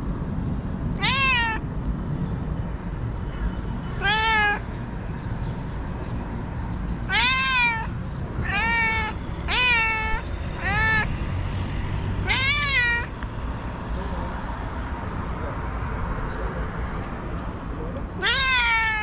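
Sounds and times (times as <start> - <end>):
cat meowing: 1.0 - 1.6, 4.0 - 4.6, 7.1 - 11.1, 12.2 - 13.1, 18.2 - 19.0.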